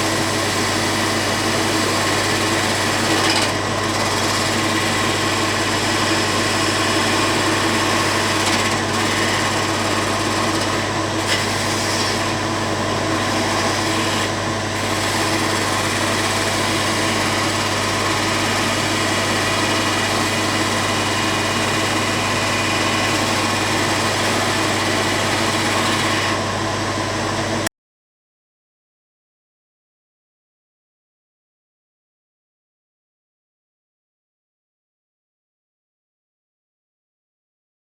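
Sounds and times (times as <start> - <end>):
electric power tool running: 0.0 - 27.7.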